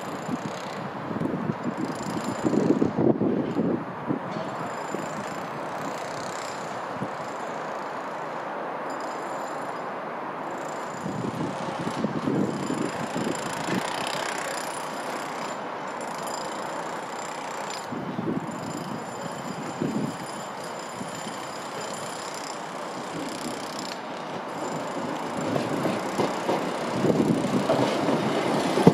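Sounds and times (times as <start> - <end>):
wind rumbling on microphone: 0.0 - 5.8, 11.0 - 14.0, 17.9 - 20.3, 25.3 - 28.9
trains running with high whine: 0.0 - 28.9.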